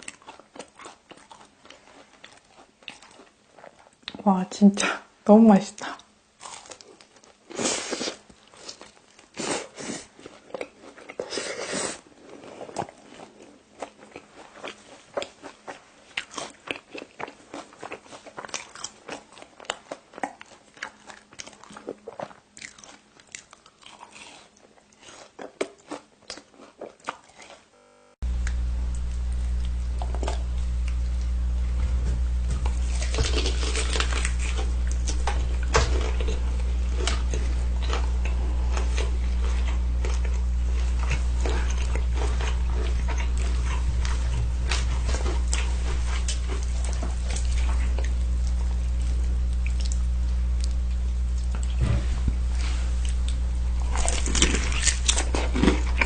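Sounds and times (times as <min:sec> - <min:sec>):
crunchy chewing: 0:00.0 - 0:04.2, 0:06.0 - 0:27.7, 0:28.3 - 0:56.0
low hum: 0:27.7 - 0:56.0.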